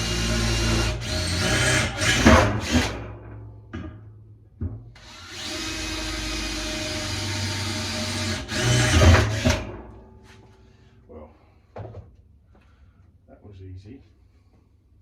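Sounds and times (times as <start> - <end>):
electric drill boring into metal: 0.0 - 3.1, 5.0 - 9.8.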